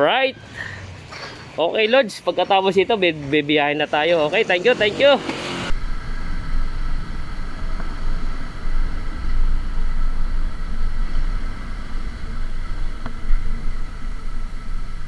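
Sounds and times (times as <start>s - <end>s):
vehicle engine rumbling: 0.0s - 15.0s
faint steady hum: 5.7s - 15.0s.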